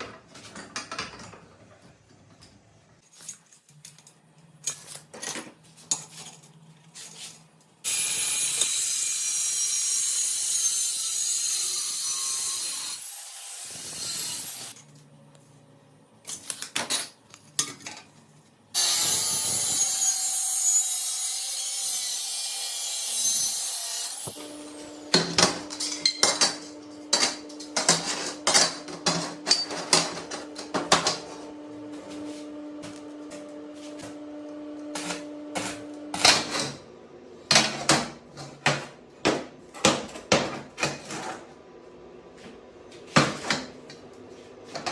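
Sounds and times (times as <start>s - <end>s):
power tool hissing: 18.8s - 20.8s.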